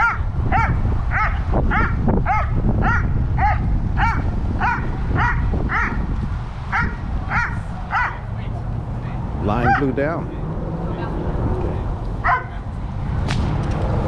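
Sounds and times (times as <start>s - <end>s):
dog barking: 0.0s - 6.1s, 6.7s - 8.3s, 9.6s - 10.0s, 12.2s - 12.6s
wind rumbling on microphone: 0.0s - 14.0s.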